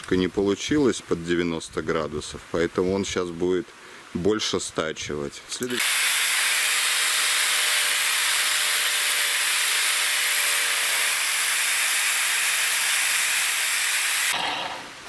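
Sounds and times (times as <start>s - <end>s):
angle grinder grinding concrete: 5.7s - 15.0s.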